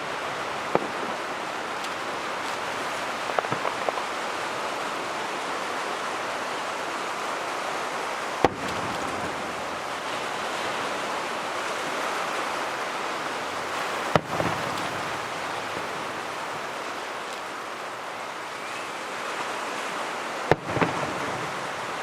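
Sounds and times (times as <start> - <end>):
fireworks bursting: 0.0 - 5.3, 8.4 - 17.4, 20.5 - 22.0.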